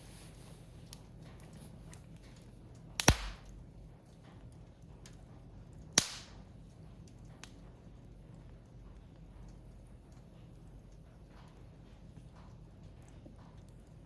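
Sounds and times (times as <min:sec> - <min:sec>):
wood fire crackling: 0:00.0 - 0:14.0
loud sharp pops: 0:03.0 - 0:03.5, 0:06.0 - 0:06.4.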